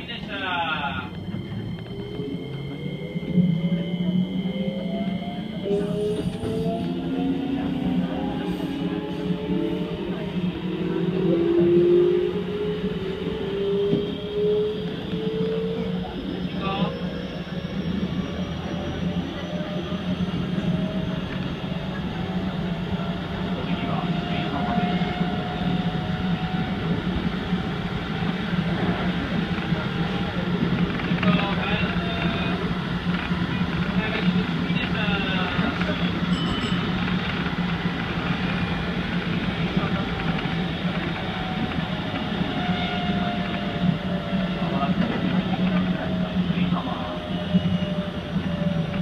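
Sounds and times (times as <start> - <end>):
constant low hum: 0.0 - 49.0
train wheels rumbling on rail: 0.0 - 49.0.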